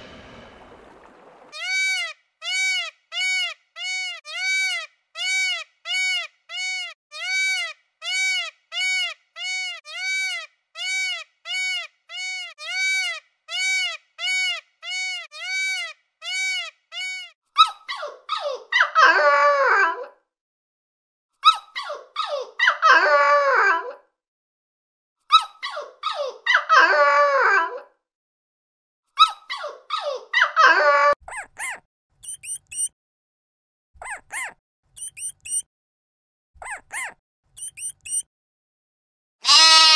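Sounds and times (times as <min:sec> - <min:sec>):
peacock calling: 0:01.4 - 0:17.4, 0:39.4 - 0:39.9.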